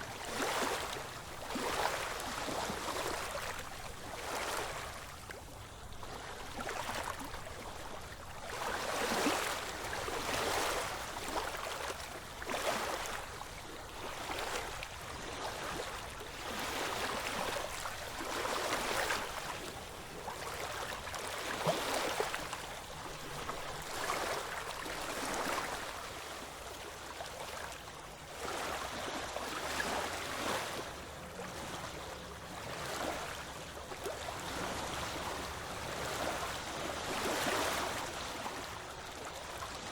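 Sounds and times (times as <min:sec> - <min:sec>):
ocean waves washing in: 0:27.4 - 0:39.9.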